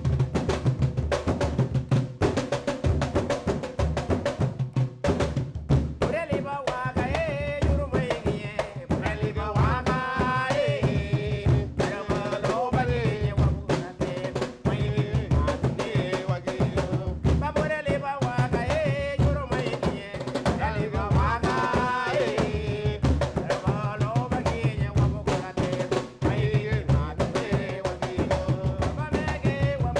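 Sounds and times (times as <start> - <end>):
hand drums playing: 0.0 - 29.9
person singing: 6.1 - 29.9.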